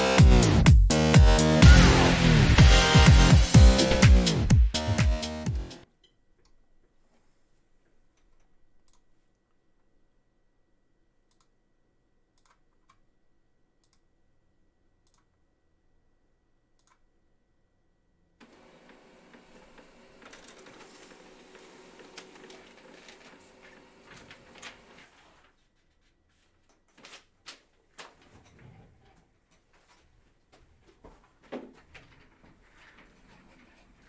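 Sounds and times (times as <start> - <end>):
crinkling wrappers rustling: 20.1 - 28.4, 30.8 - 34.0.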